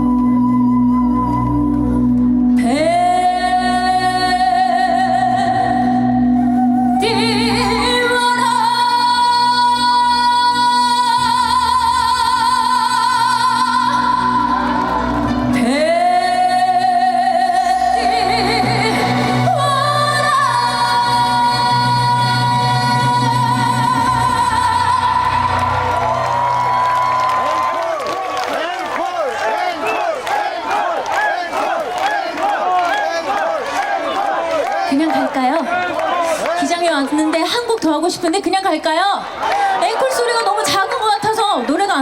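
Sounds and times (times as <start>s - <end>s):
woman singing with vibrato: 0.0s - 26.8s, 34.9s - 35.7s
backing music: 0.0s - 27.5s.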